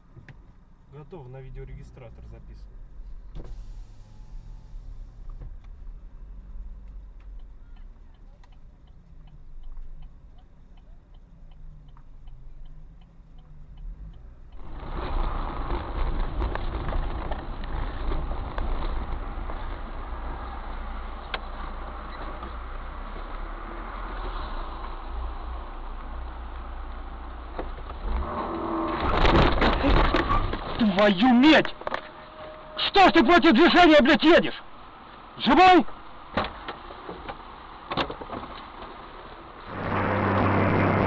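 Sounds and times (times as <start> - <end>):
engine and road rumble: 0.0 - 41.0
road and wind noise: 0.0 - 41.0
faint steady ticking: 5.0 - 14.7.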